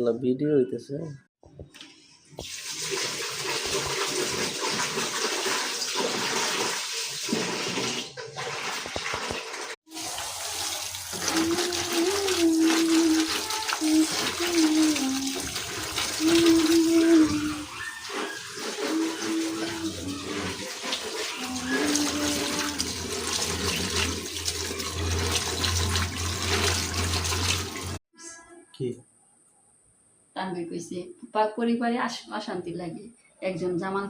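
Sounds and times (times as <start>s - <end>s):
water rushing: 2.4s - 28.0s.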